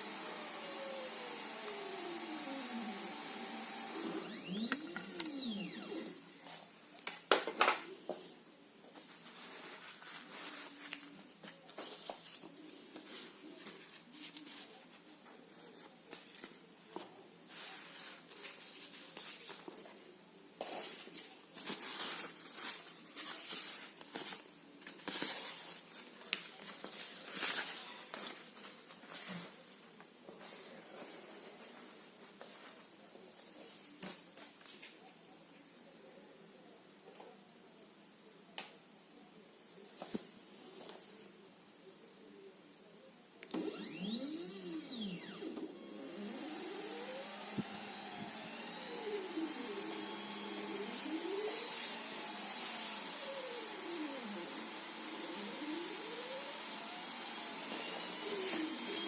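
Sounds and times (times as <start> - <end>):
stepper motors whining: 0.0 - 6.3, 43.5 - 59.0.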